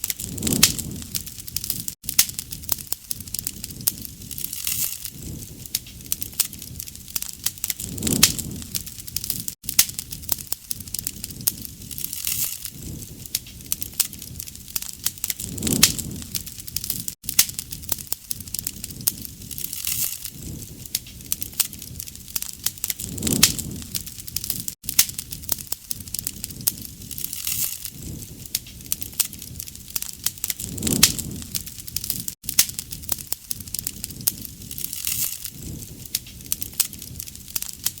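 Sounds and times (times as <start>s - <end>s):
low rush of flame: 0.0s - 38.0s
wood fire crackling and popping: 0.0s - 38.0s.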